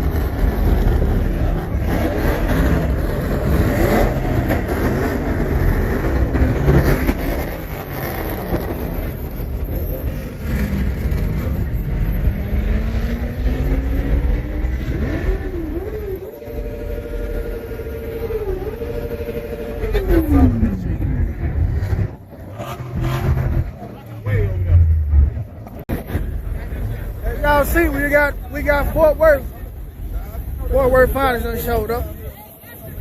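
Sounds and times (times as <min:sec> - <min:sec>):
car engines revving: 0:00.0 - 0:33.0
steady pitched tone: 0:14.2 - 0:32.4.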